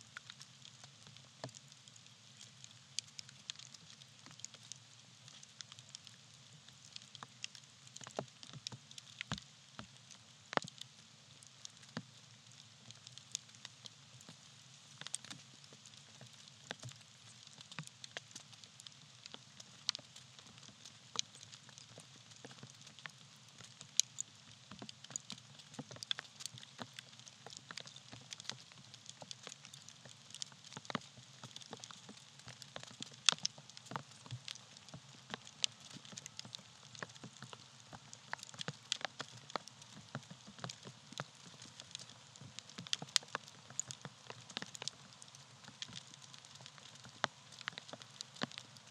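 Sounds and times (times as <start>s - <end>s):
fire crackles and pops: 0.0s - 48.9s.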